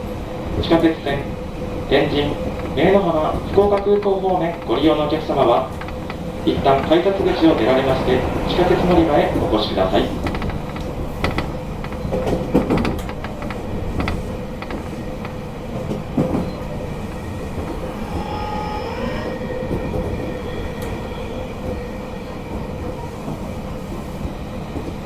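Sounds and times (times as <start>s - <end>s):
train wheels clicking over rail joints: 1.8s - 18.5s.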